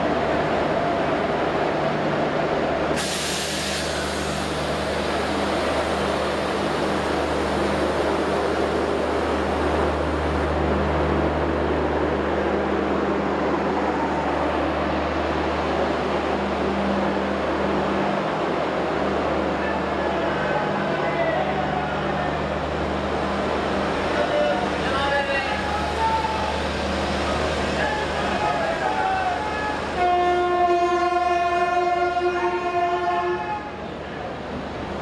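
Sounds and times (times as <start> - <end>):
train rolling past: 0.0 - 35.0
brief hiss: 3.0 - 5.0.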